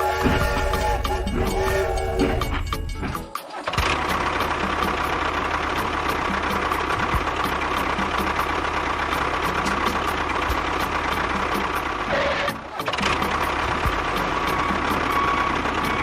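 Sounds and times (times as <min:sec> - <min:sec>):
motor whining: 0:00.0 - 0:03.3.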